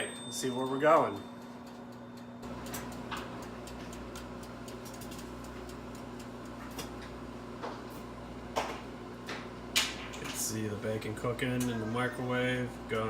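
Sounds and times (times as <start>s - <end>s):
microwave oven humming: 0.0s - 13.0s
dial timer ticking: 0.1s - 6.6s.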